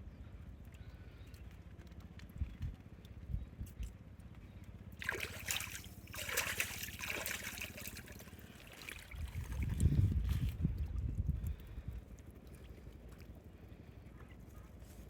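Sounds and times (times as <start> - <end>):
water splashing and trickling: 4.9 - 13.8.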